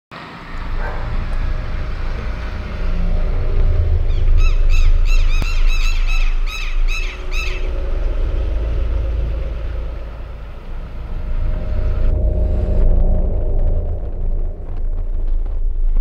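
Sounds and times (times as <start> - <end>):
low rumble: 0.2 - 16.0
bird repeated loud calls: 4.1 - 7.8.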